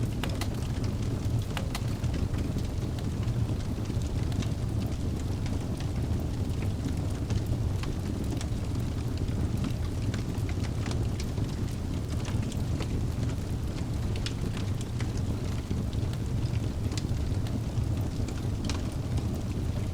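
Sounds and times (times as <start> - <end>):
flames rumbling: 0.0 - 19.9
wood fire crackling and popping: 0.0 - 19.9.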